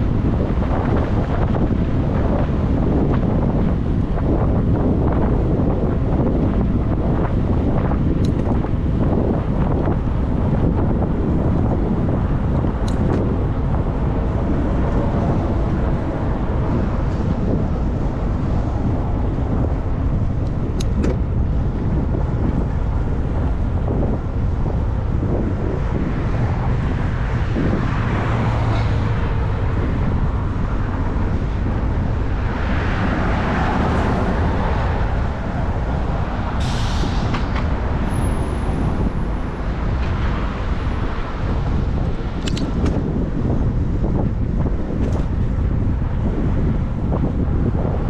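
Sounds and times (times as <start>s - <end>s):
street traffic: 0.0s - 48.0s
vehicles passing: 0.0s - 48.0s
wind noise on microphone: 0.0s - 48.0s.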